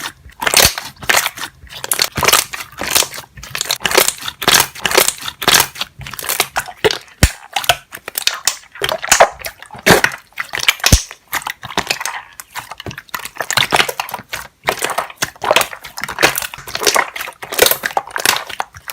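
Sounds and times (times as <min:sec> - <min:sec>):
air bubbles popping: 0:08.2 - 0:12.3.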